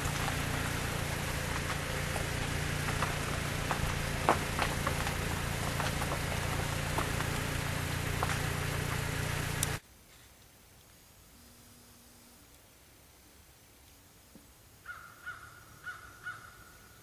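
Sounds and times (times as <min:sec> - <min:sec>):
rain hissing: 0:00.0 - 0:10.3
low steady hum: 0:00.0 - 0:14.7.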